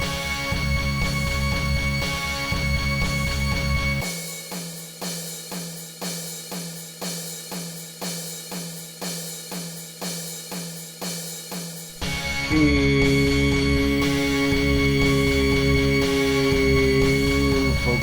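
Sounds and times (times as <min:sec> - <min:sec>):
drum kit beat with cymbals: 0:00.0 - 0:18.0.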